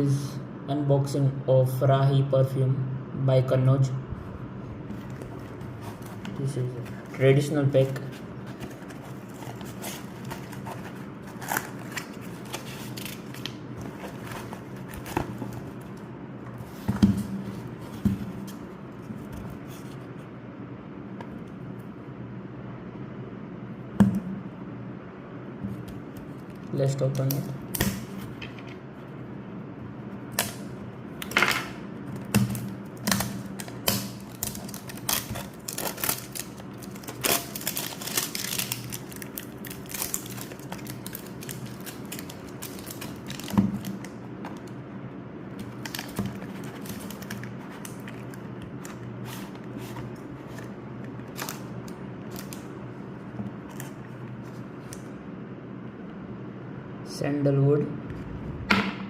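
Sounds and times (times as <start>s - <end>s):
packaging clicks and rustles: 7.8s - 16.0s, 32.1s - 44.8s, 45.6s - 52.7s.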